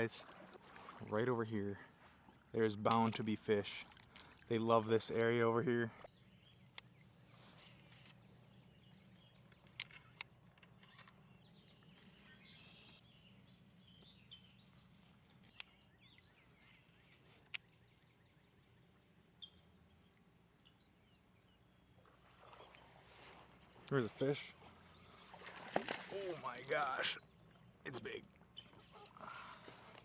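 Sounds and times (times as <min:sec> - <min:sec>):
faint bird chirps: 0:06.0 - 0:29.8.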